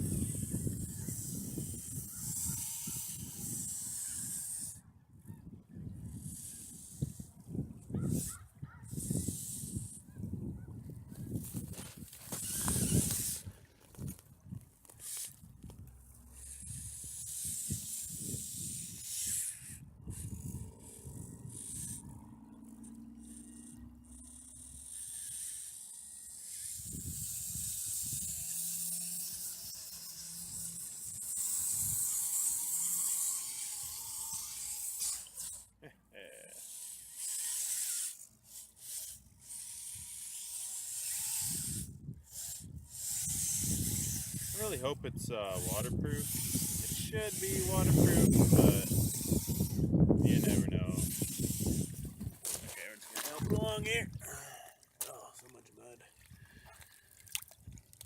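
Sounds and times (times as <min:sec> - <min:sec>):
wind buffeting microphone: 0:00.0 - 0:15.9, 0:16.5 - 0:22.4, 0:41.4 - 0:52.7, 0:53.3 - 0:54.4
small electric motor and gears: 0:00.0 - 0:54.4
running water: 0:51.4 - 0:58.0.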